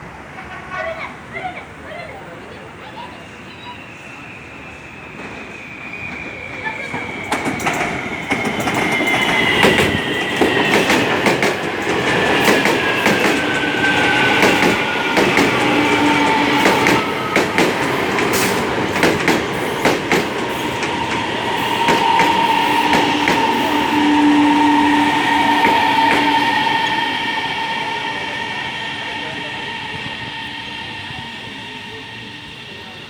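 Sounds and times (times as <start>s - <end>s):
train whine: 0.0s - 33.0s
train brake squeal: 2.7s - 11.3s, 12.1s - 33.0s
train wheels clicking over rail joints: 6.0s - 32.2s.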